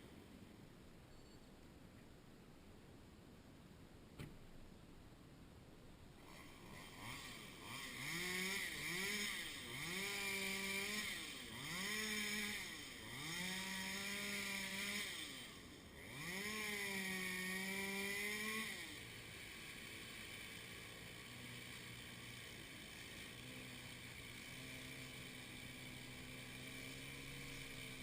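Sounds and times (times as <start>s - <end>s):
chainsaw engine revving: 6.2s - 28.0s.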